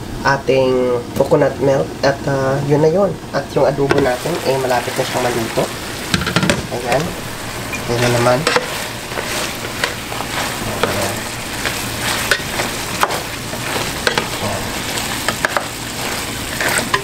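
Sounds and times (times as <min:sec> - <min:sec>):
meat sizzling in a pan: 0:03.9 - 0:17.0
spatula stirring meat: 0:04.1 - 0:17.0.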